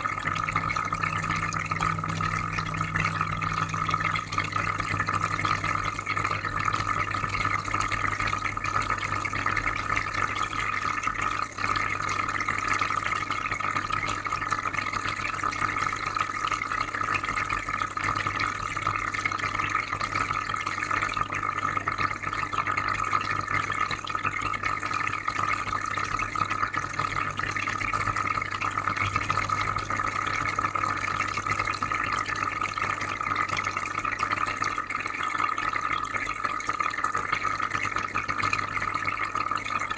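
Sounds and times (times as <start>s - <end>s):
low filter hum: 0.0s - 8.2s
bubbling and trickling water: 0.0s - 39.9s.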